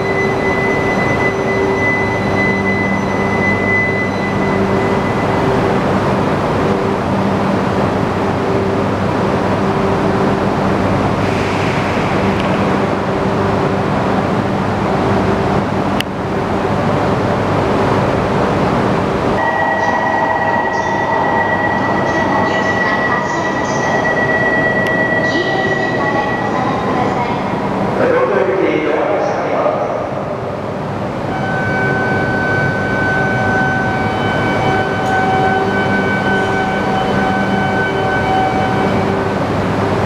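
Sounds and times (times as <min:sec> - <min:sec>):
high-pitched whine: 0:00.0 - 0:15.6
train rumble and electrical hum: 0:00.0 - 0:40.0.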